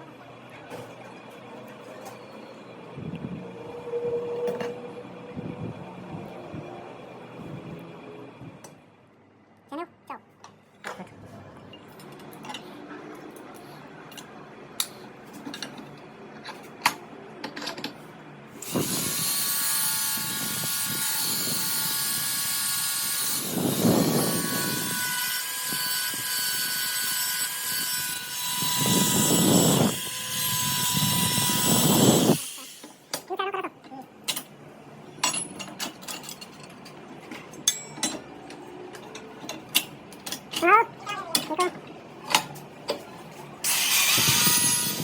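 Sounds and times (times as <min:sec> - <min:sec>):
power tool whining: 0:18.6 - 0:32.9, 0:43.6 - 0:45.0.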